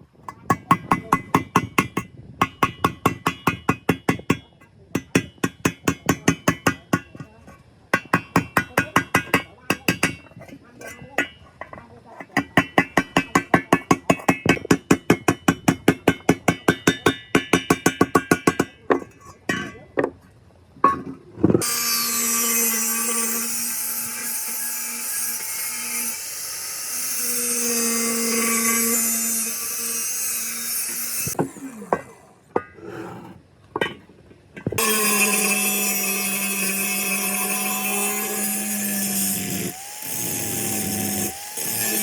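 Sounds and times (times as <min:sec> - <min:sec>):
power tool running: 0:34.8 - 0:42.0.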